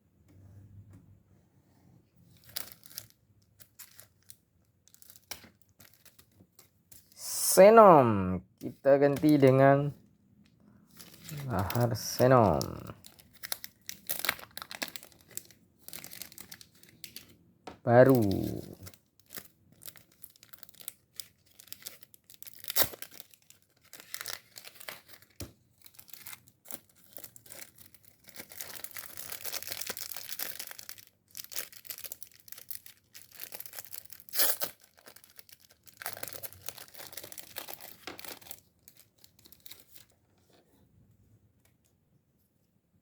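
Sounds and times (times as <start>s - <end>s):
plastic packaging crinkling: 2.3s - 7.2s, 10.8s - 17.4s, 18.0s - 40.2s.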